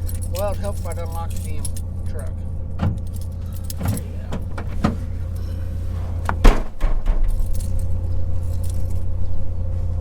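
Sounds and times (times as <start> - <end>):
keys jangling: 0.0 - 4.6, 7.3 - 9.2
low rumble: 0.0 - 10.0
truck door shutting: 2.7 - 8.0.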